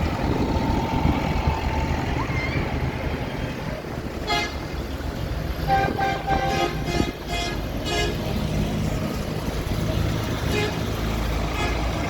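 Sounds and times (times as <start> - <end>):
low rumble of passing engines: 0.0 - 12.0
vehicle horns tooting: 4.2 - 4.6, 5.6 - 8.2, 10.4 - 10.8, 11.5 - 11.9.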